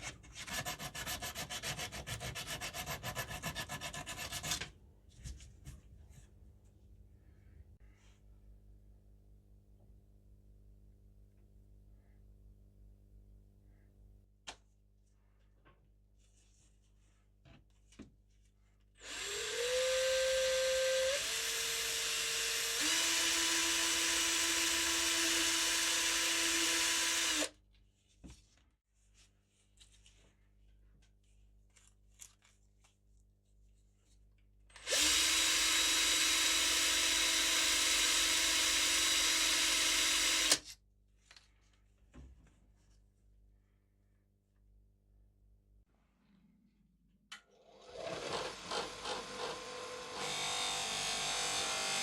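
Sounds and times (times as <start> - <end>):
power drill whining: 19.0 - 27.5, 34.8 - 40.6, 47.7 - 52.0.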